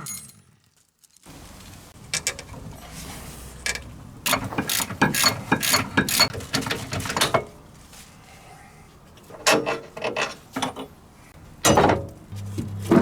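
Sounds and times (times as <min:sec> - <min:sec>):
ratchet wrench clicking: 0:03.6 - 0:06.3.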